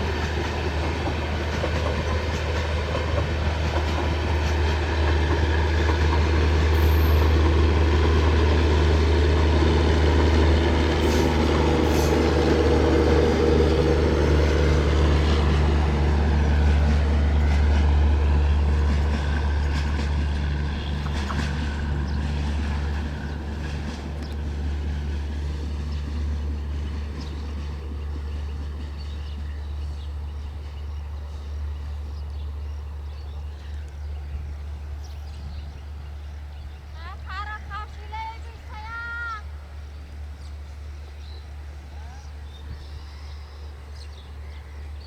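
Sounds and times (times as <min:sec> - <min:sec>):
train wheels clacking: 0:00.0 - 0:29.4
diesel train passing: 0:00.0 - 0:45.0.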